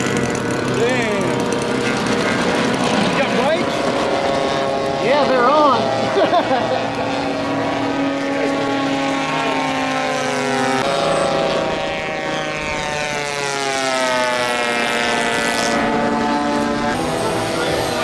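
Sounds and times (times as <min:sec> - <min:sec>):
model airplane engines droning: 0:00.0 - 0:18.0.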